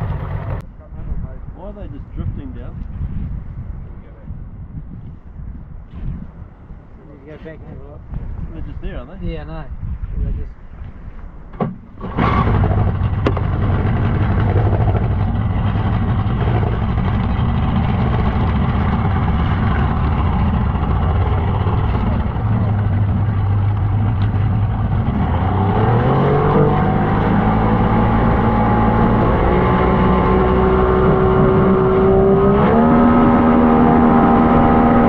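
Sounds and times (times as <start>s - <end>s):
outboard jet motor running: 0.0s - 0.6s, 11.9s - 35.0s.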